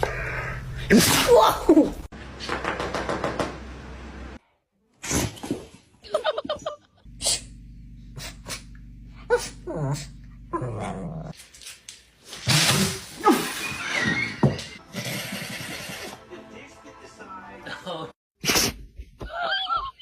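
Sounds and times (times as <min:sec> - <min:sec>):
dog sneezing and snorting: 0:18.4 - 0:18.8.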